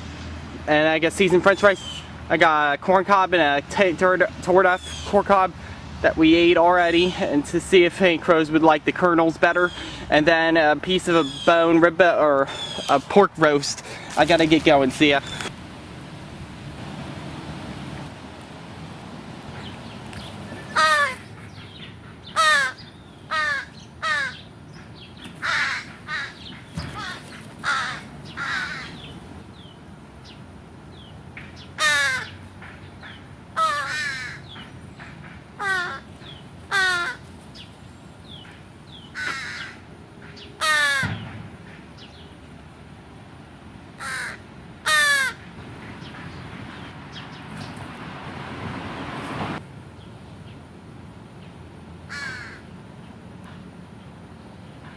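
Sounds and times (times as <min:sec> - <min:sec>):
steady background hum: 0:00.0 - 0:54.9
crows cawing: 0:20.5 - 0:24.4, 0:25.4 - 0:29.1, 0:31.8 - 0:36.1, 0:36.7 - 0:37.3, 0:39.1 - 0:41.8, 0:44.0 - 0:45.5, 0:52.1 - 0:52.7.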